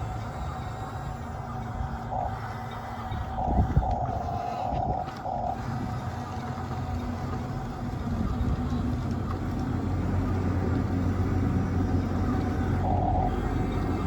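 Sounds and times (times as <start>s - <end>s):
engine idling rumble: 0.0s - 14.0s.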